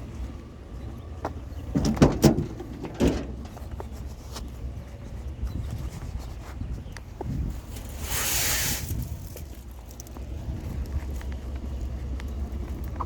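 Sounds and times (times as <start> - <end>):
vehicle engine humming: 0.0 - 13.0
sharp knocks and clatters: 1.7 - 3.9.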